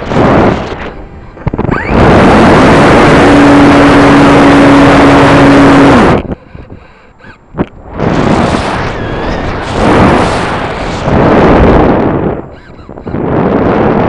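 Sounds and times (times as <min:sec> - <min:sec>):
model airplane engine running: 0:01.7 - 0:07.4.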